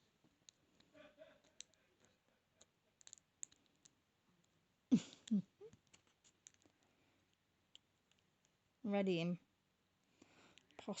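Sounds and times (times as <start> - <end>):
small metal clicks of lock picking: 2.6 - 4.0.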